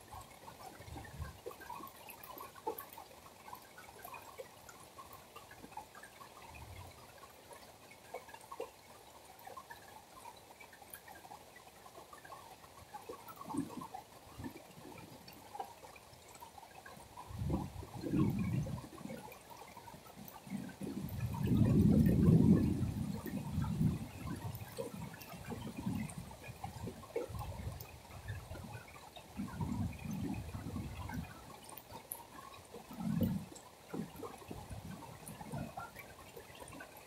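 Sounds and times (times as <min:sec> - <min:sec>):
rain pouring: 0:00.0 - 0:37.0.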